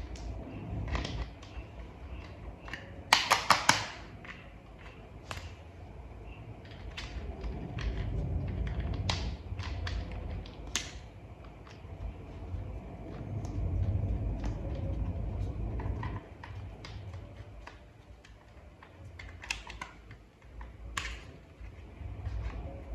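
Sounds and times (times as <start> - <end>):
plastic toy parts clicking: 2.2 - 5.6, 6.6 - 11.8, 16.4 - 21.3.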